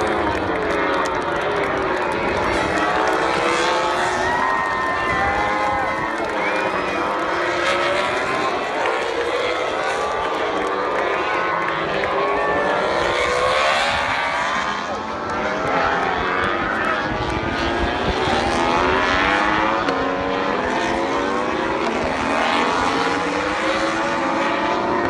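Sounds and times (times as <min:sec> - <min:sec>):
racing motorcycles at high revs: 0:00.0 - 0:25.0.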